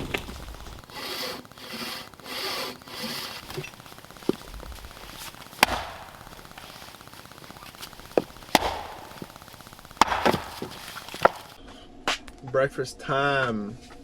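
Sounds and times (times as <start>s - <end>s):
saw cutting wood: 0.0s - 11.6s
sharp knocks: 0.0s - 11.6s.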